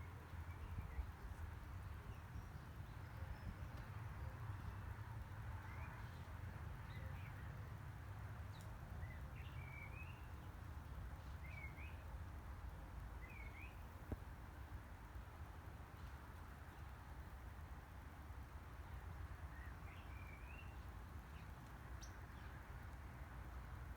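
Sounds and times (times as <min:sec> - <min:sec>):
faint songbird chirps: 0:00.0 - 0:07.7, 0:08.5 - 0:12.2, 0:13.2 - 0:14.0, 0:18.7 - 0:22.8.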